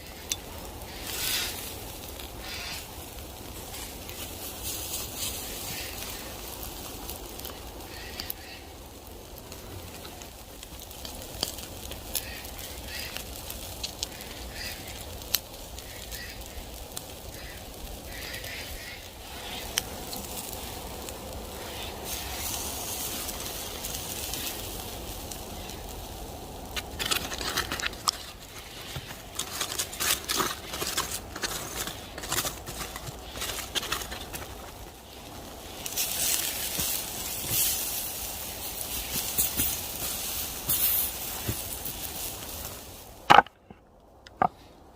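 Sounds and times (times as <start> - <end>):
campfire crackling and popping: 0.0 - 44.9.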